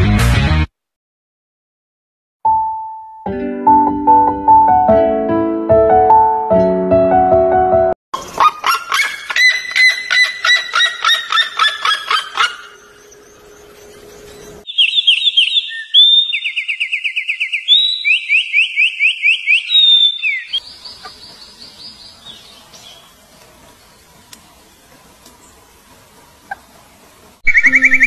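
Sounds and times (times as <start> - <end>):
songbird trilling: 8.2 - 23.2, 27.4 - 28.0
bird calling falling notes: 8.2 - 24.4, 27.4 - 28.0.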